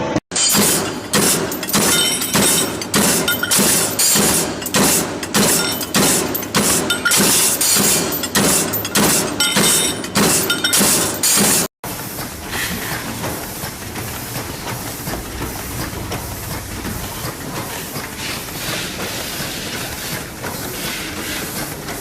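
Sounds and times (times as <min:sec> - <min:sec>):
factory machinery clattering: 0:00.0 - 0:22.0.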